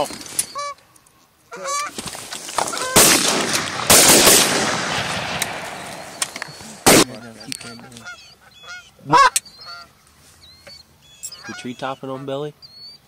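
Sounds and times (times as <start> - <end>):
geese honking: 0.5 - 0.8, 1.5 - 2.0, 2.6 - 3.2, 5.7 - 10.0, 11.1 - 12.5
loud sudden blasts: 2.8 - 7.2.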